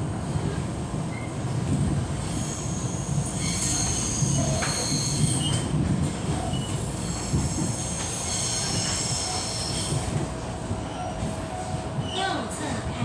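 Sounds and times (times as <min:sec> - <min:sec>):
train running gear rumble: 0:00.0 - 0:13.0
steel wheel squeal: 0:07.8 - 0:09.9.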